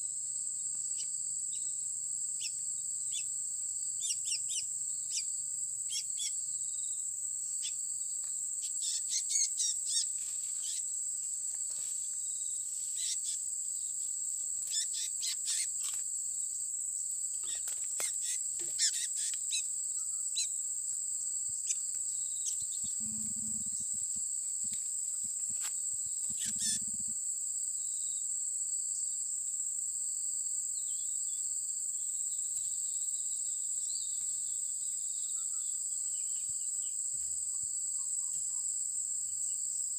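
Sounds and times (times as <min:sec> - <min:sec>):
high insect drone: 0:00.0 - 0:39.9
small birds chirping: 0:00.7 - 0:01.8, 0:02.4 - 0:03.4, 0:04.0 - 0:07.0, 0:07.6 - 0:10.9, 0:12.2 - 0:14.0, 0:14.6 - 0:16.1, 0:17.3 - 0:20.7, 0:21.6 - 0:24.2, 0:25.1 - 0:27.2.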